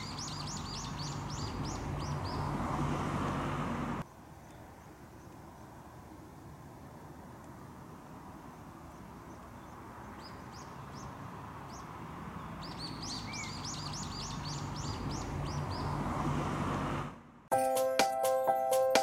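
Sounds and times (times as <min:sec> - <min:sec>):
small bird chirping: 0:00.0 - 0:02.6, 0:08.8 - 0:16.0.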